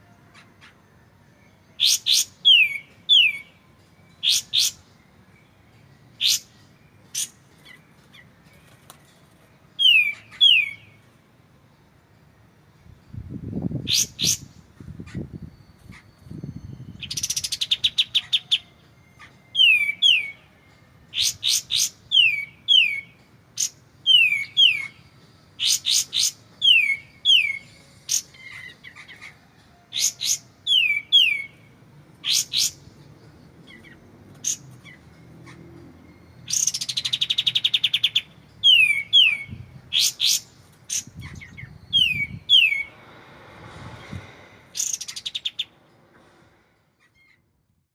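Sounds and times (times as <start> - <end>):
bird singing trills and whistles: 1.8 - 5.0, 6.2 - 8.4, 9.8 - 11.0, 13.8 - 20.5, 21.1 - 32.9, 36.1 - 43.0.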